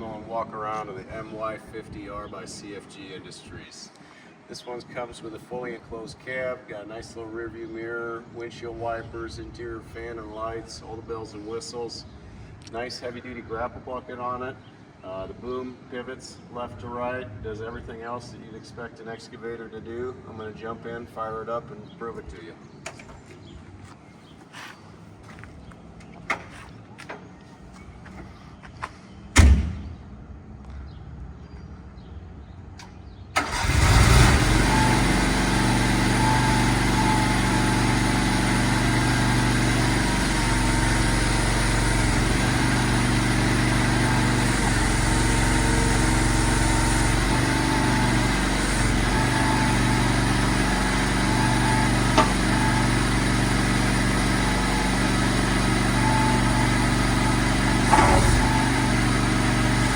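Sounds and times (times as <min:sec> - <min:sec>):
thump: 0:29.4 - 0:30.0, 0:57.9 - 0:58.4
excavator engine starting and idling: 0:32.9 - 0:59.9.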